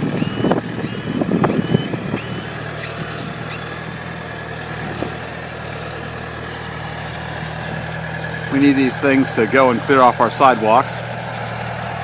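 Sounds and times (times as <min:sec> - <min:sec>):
snow plow engine running: 0:00.0 - 0:12.0.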